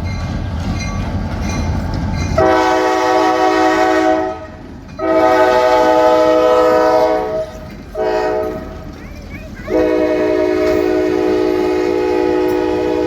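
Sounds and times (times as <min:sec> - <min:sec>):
train rumbling: 0:00.0 - 0:13.0
locomotive air horn blasts: 0:02.4 - 0:08.7, 0:09.7 - 0:13.0.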